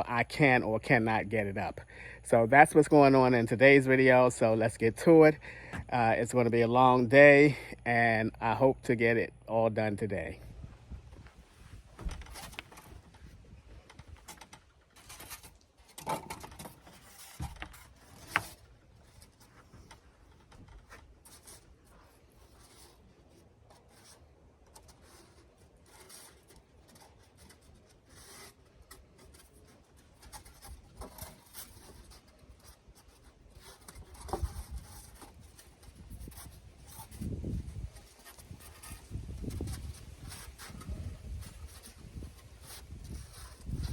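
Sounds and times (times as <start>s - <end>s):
foam board rubbing and scraping: 11.3s - 43.9s.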